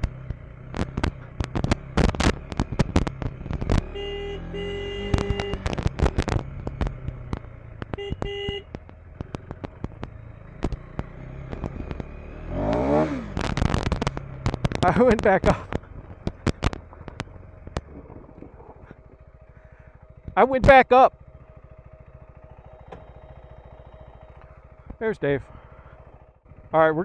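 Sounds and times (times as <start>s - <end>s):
sharp clicks and knocks: 0.0s - 3.9s, 5.1s - 18.5s
motorcycle engine running: 0.0s - 27.0s.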